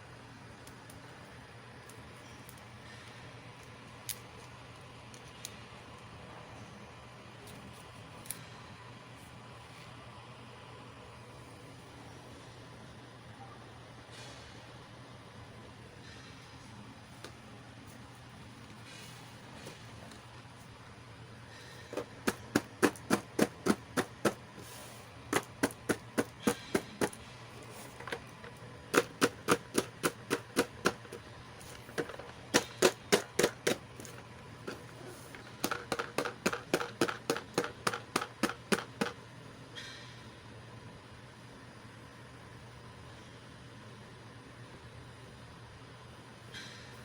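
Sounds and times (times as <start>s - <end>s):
plastic toy pieces clicking: 22.0s - 24.4s, 25.3s - 27.2s, 27.8s - 39.2s.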